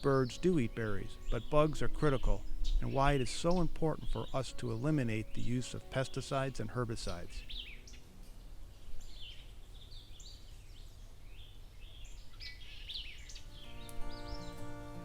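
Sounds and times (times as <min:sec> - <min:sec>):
background music: 0:00.0 - 0:09.2, 0:13.3 - 0:15.0
songbirds chirping: 0:00.0 - 0:15.0.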